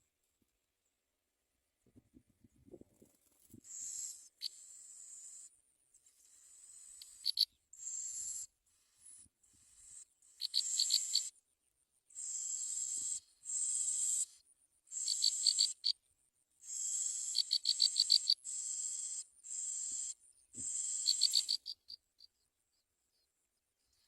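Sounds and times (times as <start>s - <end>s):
nestlings begging calls: 3.7s - 5.5s, 6.4s - 11.3s, 12.2s - 16.0s, 16.6s - 22.0s.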